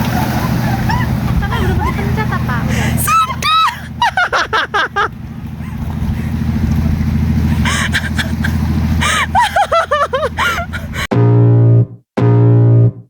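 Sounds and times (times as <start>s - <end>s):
voices: 0.0s - 6.5s, 7.2s - 11.1s
vehicle engine running: 0.0s - 11.1s
music: 11.1s - 13.0s.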